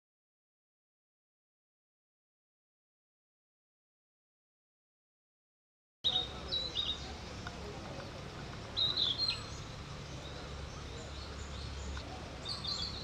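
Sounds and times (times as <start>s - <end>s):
bird singing whistled notes: 6.0s - 7.1s, 8.8s - 13.0s.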